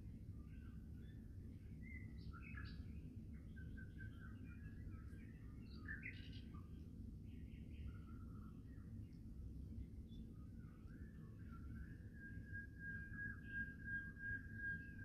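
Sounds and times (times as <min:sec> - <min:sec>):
small birds chirping: 0:00.5 - 0:09.3.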